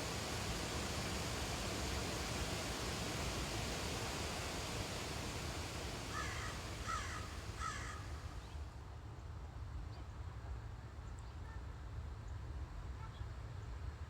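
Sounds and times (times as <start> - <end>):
steady rushing noise: 0.0 - 8.4.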